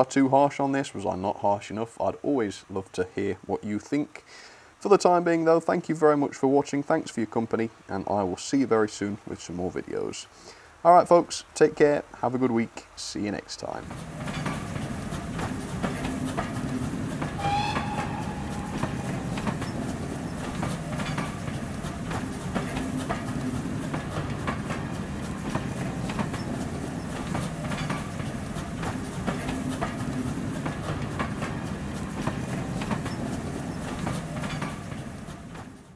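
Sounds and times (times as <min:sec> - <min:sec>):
train wheels clicking over joints: 0:13.6 - 0:35.9
high train whistle: 0:17.3 - 0:20.6.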